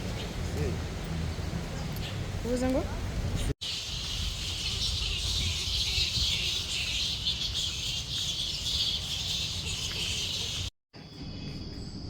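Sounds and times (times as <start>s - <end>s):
insects chirring: 3.6s - 12.0s.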